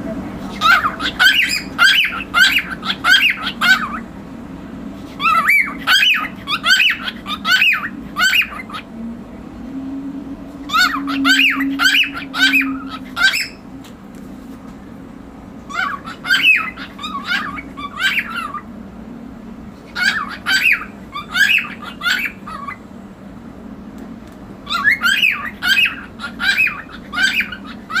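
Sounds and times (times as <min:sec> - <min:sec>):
cockatiel squawky chirps: 0:00.5 - 0:04.0, 0:05.2 - 0:08.8, 0:10.7 - 0:13.6, 0:15.7 - 0:18.6, 0:19.9 - 0:22.8, 0:24.7 - 0:28.0.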